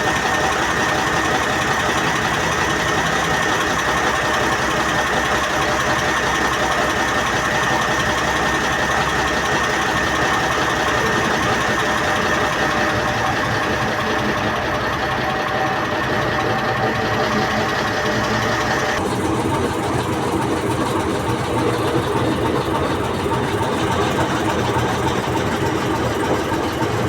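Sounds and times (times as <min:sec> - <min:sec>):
train engine drone: 0:00.0 - 0:27.0.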